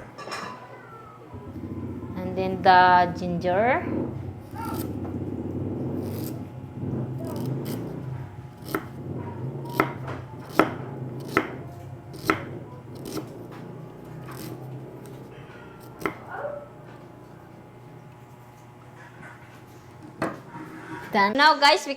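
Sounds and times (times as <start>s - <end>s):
knife chopping on cutting board: 4.5s - 5.0s, 7.2s - 8.0s, 8.6s - 9.0s, 9.6s - 15.2s, 15.9s - 16.3s.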